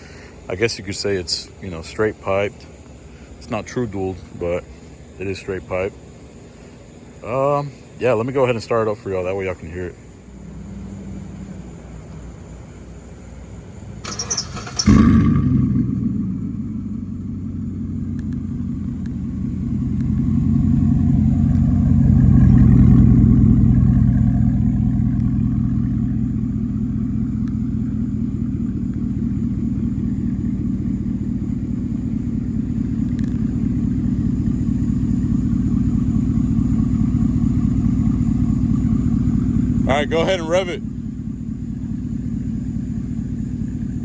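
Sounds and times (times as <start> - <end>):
truck engine idling: 10.0 - 44.0.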